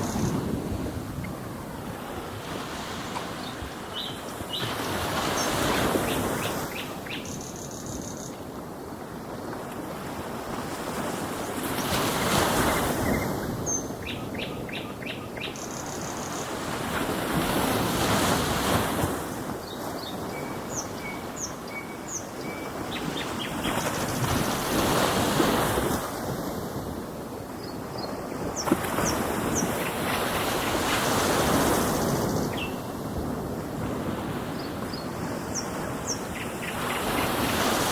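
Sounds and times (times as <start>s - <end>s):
ocean waves washing in: 0.0s - 14.7s, 15.6s - 37.9s
small birds chirping: 3.4s - 8.4s, 11.8s - 16.5s, 31.8s - 32.9s.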